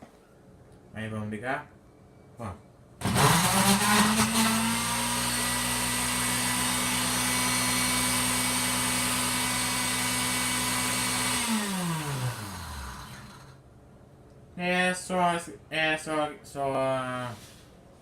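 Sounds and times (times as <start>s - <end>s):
blender motor spinning down: 3.0s - 13.6s
electric blender motor running: 3.0s - 13.6s.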